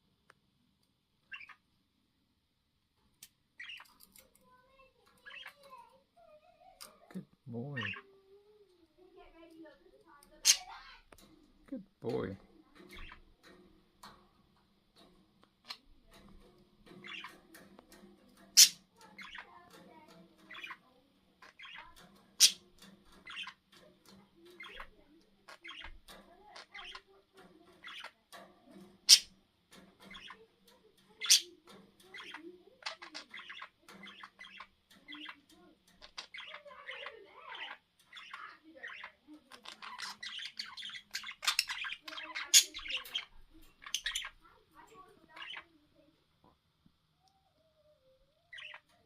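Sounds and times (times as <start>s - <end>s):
budgies chirping: 1.2s - 1.6s, 3.6s - 4.2s, 4.8s - 5.9s, 6.6s - 8.1s, 10.2s - 11.3s, 12.1s - 14.2s, 15.0s - 44.6s, 45.2s - 45.7s, 48.5s - 49.0s
budgie squawks: 10.4s - 11.0s, 18.6s - 19.3s.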